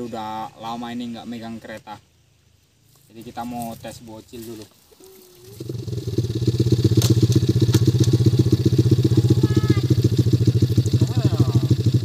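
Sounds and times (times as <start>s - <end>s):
small motorcycle engine running: 5.4s - 12.0s.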